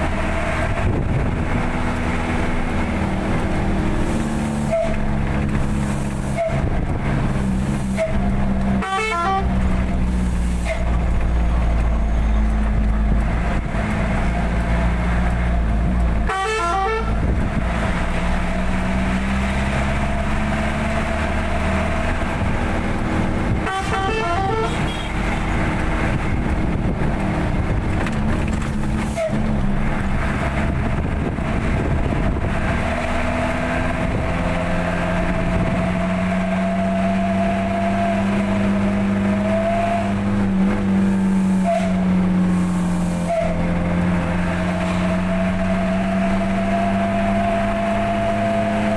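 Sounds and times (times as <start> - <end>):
truck engine running: 0.0 - 48.9
multi-tone horn: 8.8 - 9.6, 16.2 - 17.2, 23.5 - 25.2, 41.5 - 42.1, 43.2 - 43.6.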